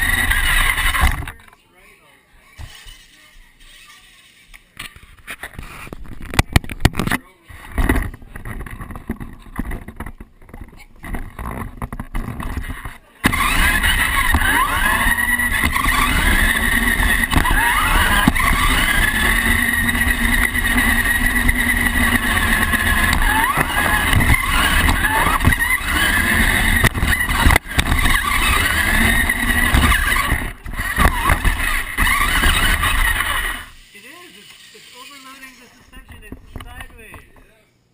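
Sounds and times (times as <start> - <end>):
toy truck motor whining: 0.0 - 1.3, 9.6 - 36.3
steady rumble: 13.3 - 33.8.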